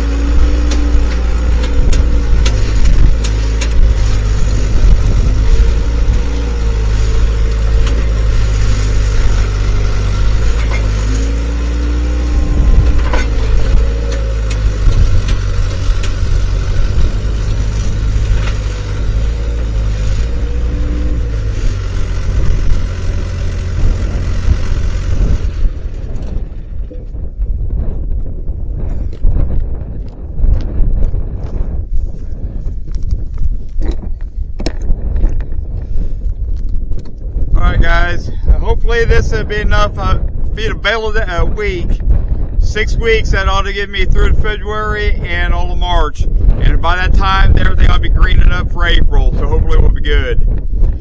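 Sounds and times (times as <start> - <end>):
skid steer engine under load: 0.0 - 28.0, 37.8 - 51.0.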